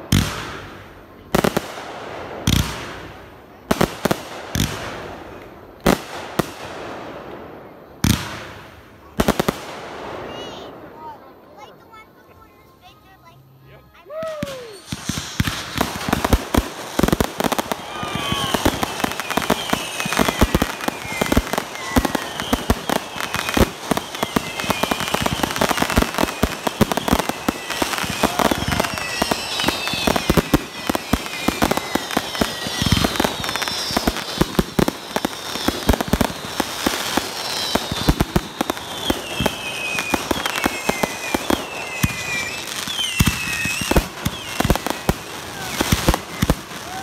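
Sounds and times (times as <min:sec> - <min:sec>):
fireworks barrage: 0:00.0 - 0:12.6, 0:13.2 - 0:47.0
falling whistling tones: 0:13.6 - 0:47.0.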